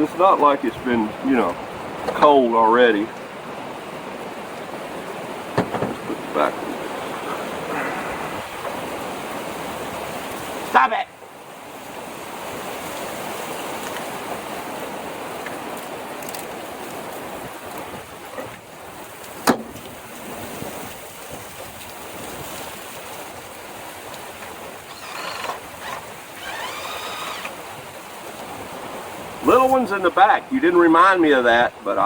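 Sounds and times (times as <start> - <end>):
wind on microphone: 3.4 - 10.7, 16.8 - 29.5.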